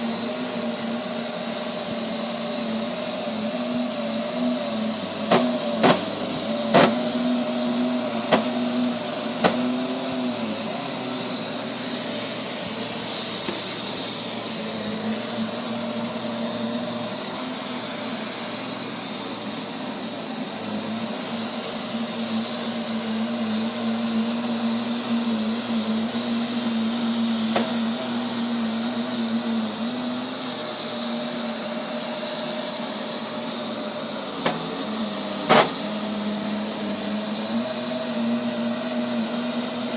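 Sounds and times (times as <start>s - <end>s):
robot vacuum motor drone: 0.0s - 39.9s.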